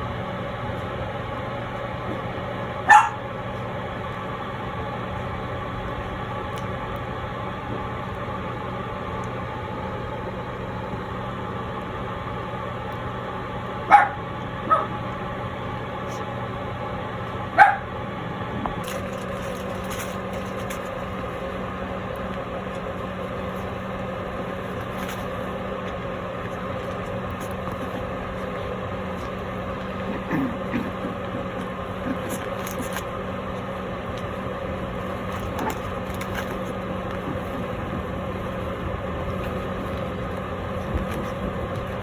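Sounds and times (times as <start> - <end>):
background hum: 0.0 - 42.0
puppy barking: 2.8 - 3.3, 13.9 - 15.0, 17.5 - 17.9.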